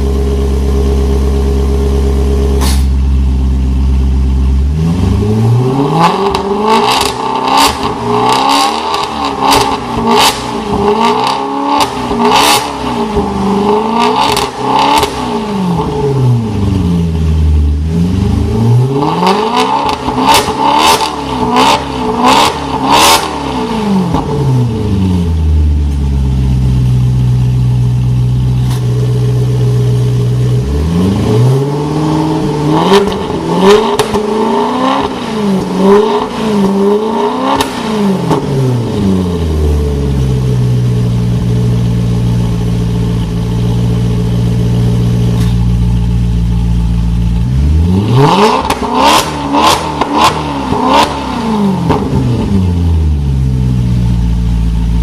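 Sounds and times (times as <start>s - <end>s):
car engine revving: 0.0s - 55.0s
exhaust cracks: 32.4s - 39.1s.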